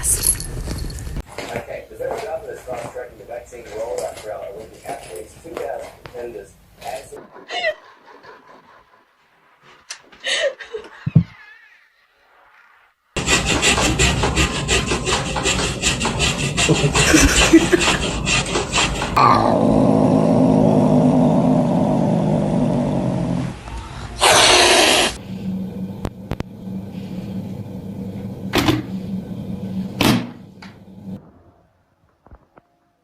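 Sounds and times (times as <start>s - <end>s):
pet growling low: 19.2s - 31.2s.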